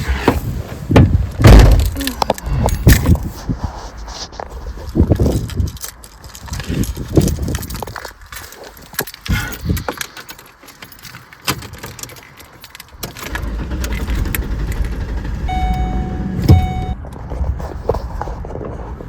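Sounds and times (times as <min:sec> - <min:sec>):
clicks and knocks in car: 0:00.2 - 0:03.2, 0:08.9 - 0:18.8
loud thump: 0:00.3 - 0:02.0, 0:16.3 - 0:17.0
keys jangling: 0:01.7 - 0:03.3, 0:04.9 - 0:14.8
car engine idling: 0:13.0 - 0:17.1
electronic warning chime: 0:15.5 - 0:17.0.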